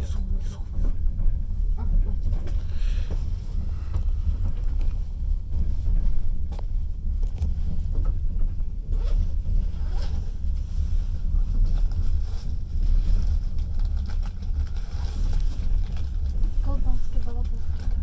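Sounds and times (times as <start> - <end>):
train carriage rumbling on track: 0.0 - 18.0.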